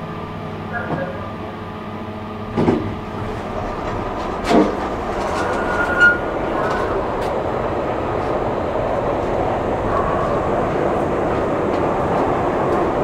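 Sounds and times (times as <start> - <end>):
train rumbling: 0.0 - 13.0
sharp knocks: 2.5 - 5.3.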